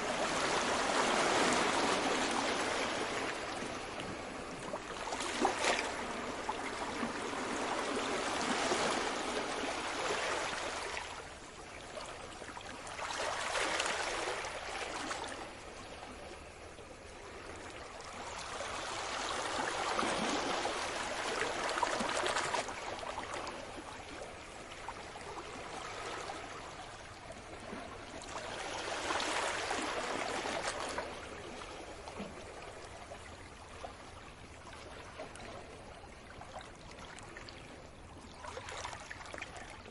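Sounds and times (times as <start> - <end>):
sea waves washing ashore: 0.0 - 11.4, 16.4 - 32.6.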